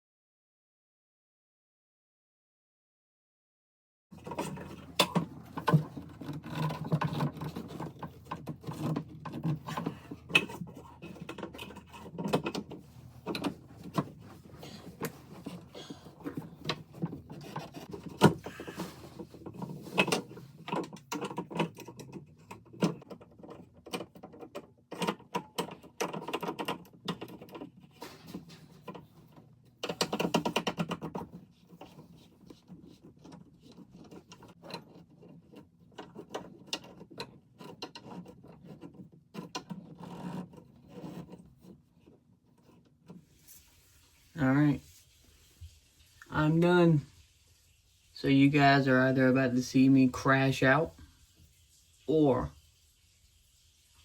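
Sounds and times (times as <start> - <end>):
knocks clicks and scrapes of pipes: 4.1 - 46.2.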